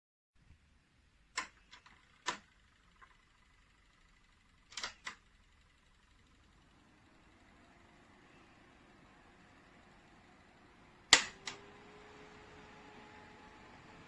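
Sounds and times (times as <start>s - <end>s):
sharp clicks: 1.3s - 3.2s, 4.6s - 5.3s, 11.1s - 11.7s.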